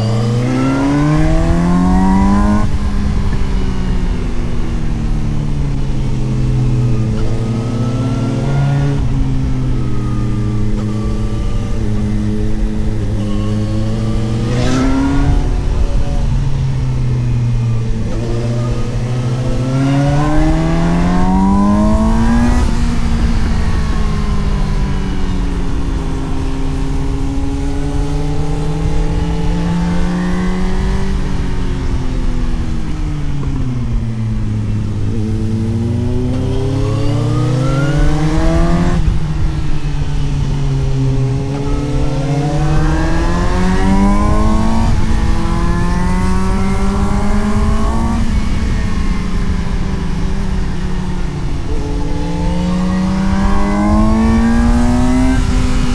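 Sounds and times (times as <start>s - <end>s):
motorcycle engine revving and shifting: 0.0s - 55.9s.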